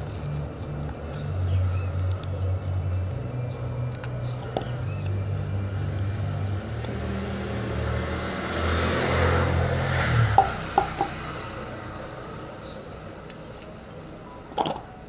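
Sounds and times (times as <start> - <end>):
vehicle engine running: 0.0 - 14.9
swell of noise: 6.2 - 13.0.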